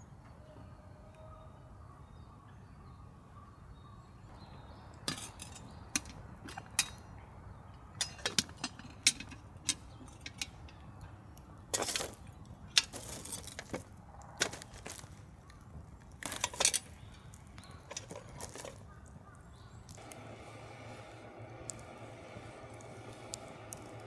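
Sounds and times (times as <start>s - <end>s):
clicks knocks and clinks: 5.0s - 7.2s, 7.8s - 11.1s, 11.8s - 15.1s, 16.2s - 19.0s
scraping rustle: 16.1s - 18.9s.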